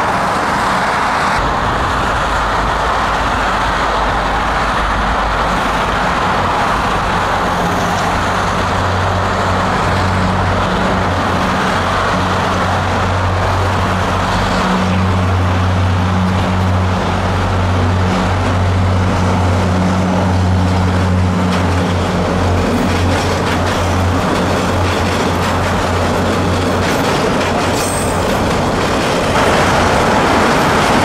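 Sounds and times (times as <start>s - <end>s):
diesel locomotive engine drone: 0.0s - 31.0s
subway train running: 0.0s - 31.0s
train rolling rumble: 0.0s - 31.0s.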